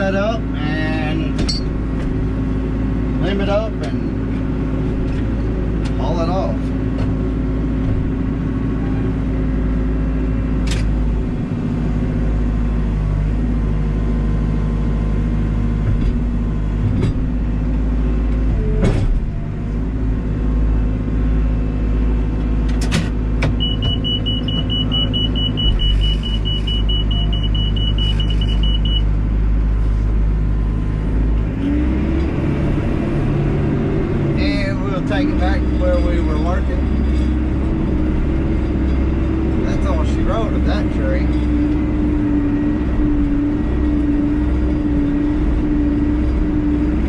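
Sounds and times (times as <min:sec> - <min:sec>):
diesel engine running: 0:00.0 - 0:47.0
sharp metal clanks: 0:01.4 - 0:01.8
high electronic beep: 0:23.6 - 0:29.1.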